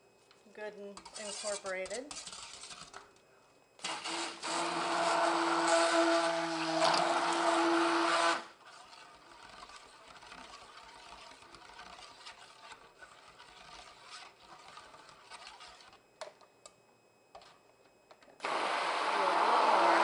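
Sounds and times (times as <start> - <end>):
stick blender running: 3.8 - 12.6, 18.4 - 20.0.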